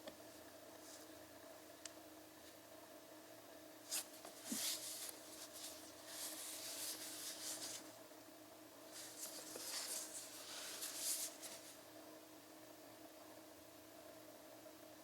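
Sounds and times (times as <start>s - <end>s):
low electrical hum: 0.0s - 15.0s
faint rubbing and scraping: 3.9s - 7.9s, 8.9s - 11.8s.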